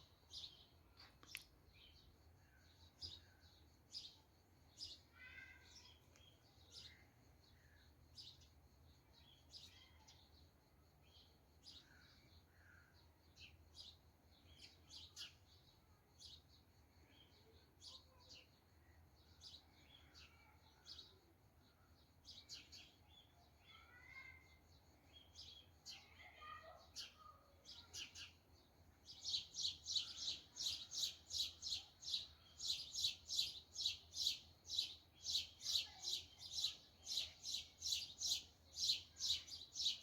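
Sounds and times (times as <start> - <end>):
bird chirping: 24.9 - 40.0.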